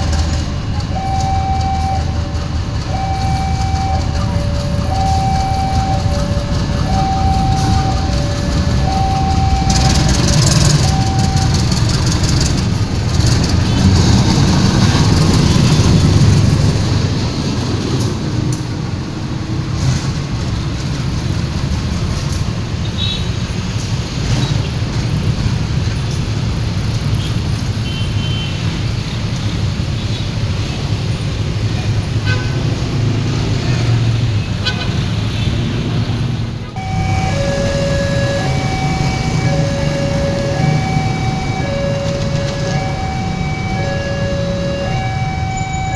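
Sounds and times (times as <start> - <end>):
train rumbling past: 0.0 - 22.8, 35.1 - 45.9.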